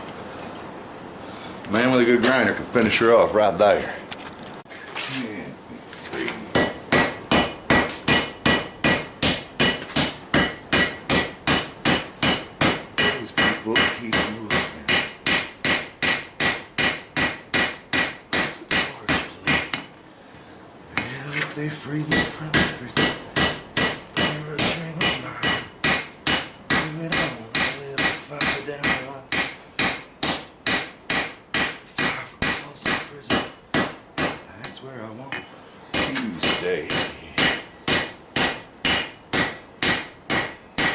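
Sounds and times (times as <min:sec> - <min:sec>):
hammer striking anvil: 0:06.5 - 0:19.9, 0:22.1 - 0:34.4, 0:35.4 - 0:40.9.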